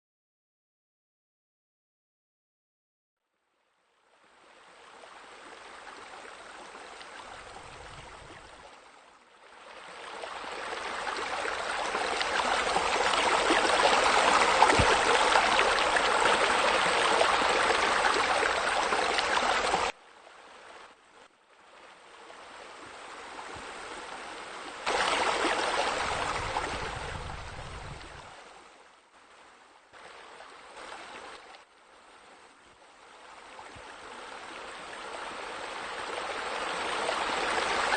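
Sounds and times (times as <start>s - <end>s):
waterfall splashing and rushing: 10.2s - 20.0s, 24.8s - 28.2s.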